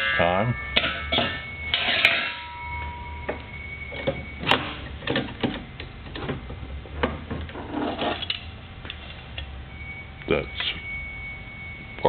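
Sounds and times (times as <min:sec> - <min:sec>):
metal scrape: 0:00.0 - 0:02.8.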